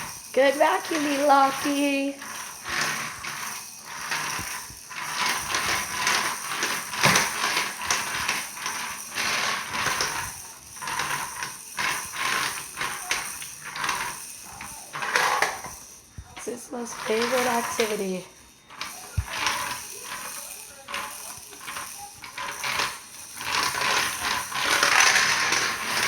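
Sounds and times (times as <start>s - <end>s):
toy vacuum rattling on slate floor: 0.0s - 26.0s.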